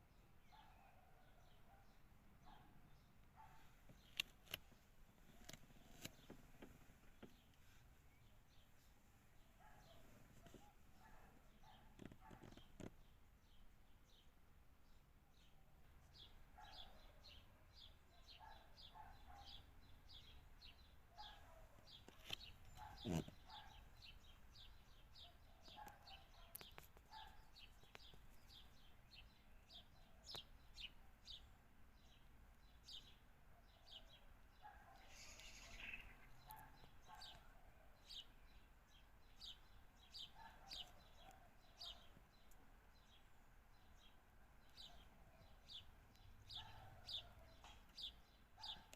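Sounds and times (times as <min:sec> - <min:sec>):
small birds chirping: 0:00.0 - 0:48.9
lower bird calls: 0:18.3 - 0:28.7, 0:34.6 - 0:37.5.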